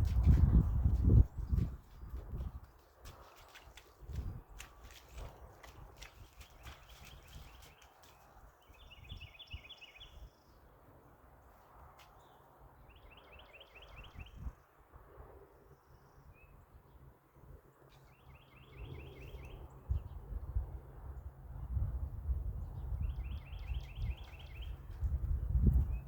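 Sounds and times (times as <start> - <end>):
bird singing: 6.4 - 10.7, 12.2 - 14.5, 17.8 - 20.2, 22.6 - 25.0.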